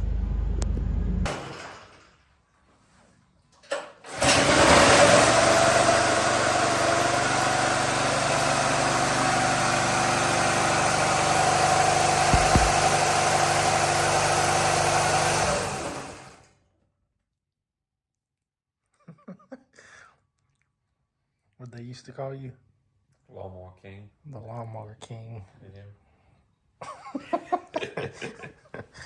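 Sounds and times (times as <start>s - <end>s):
lawnmower engine running: 4.1s - 16.4s.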